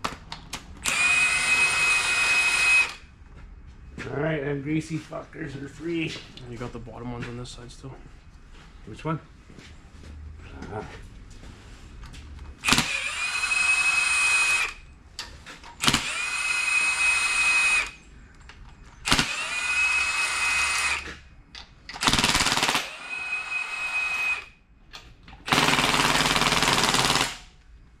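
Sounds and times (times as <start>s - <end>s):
impact wrench whine: 0.8s - 3.1s, 12.6s - 14.8s, 15.8s - 18.1s, 19.0s - 21.2s, 22.0s - 24.6s, 25.4s - 27.4s.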